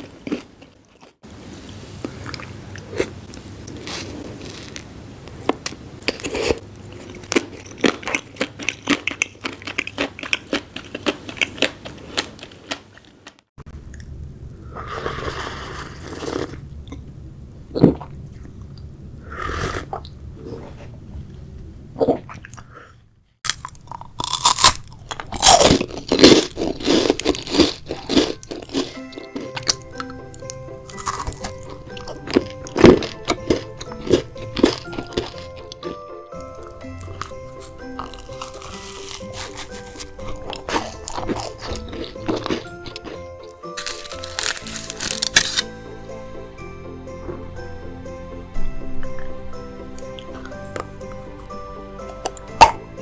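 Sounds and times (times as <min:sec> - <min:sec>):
crunchy food chewing: 0:00.0 - 0:01.2, 0:02.0 - 0:14.1, 0:23.4 - 0:45.7.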